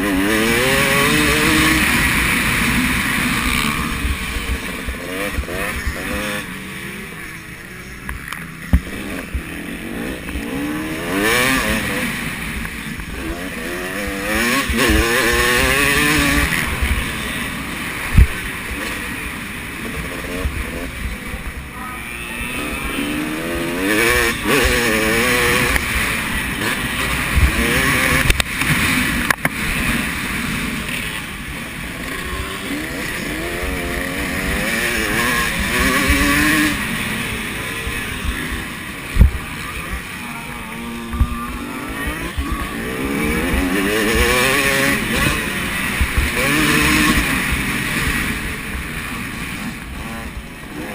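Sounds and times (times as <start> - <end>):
motocross bike engines revving: 0.0 - 50.9.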